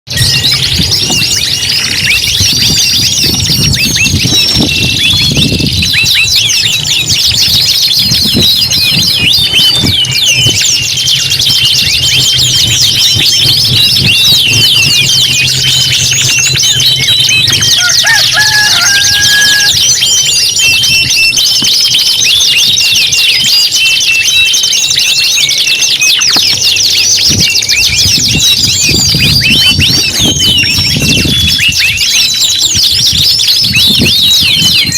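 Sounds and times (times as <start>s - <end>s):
canaries singing: 0.1s - 34.9s.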